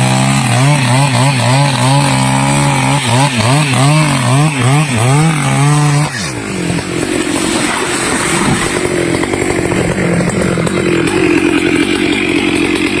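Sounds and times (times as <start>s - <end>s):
chainsaw engine running hard: 0.0s - 13.0s.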